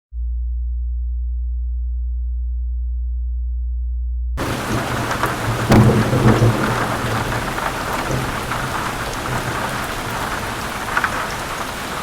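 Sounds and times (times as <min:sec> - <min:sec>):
deep low hum: 0:00.1 - 0:11.6
heavy rain: 0:04.4 - 0:12.0.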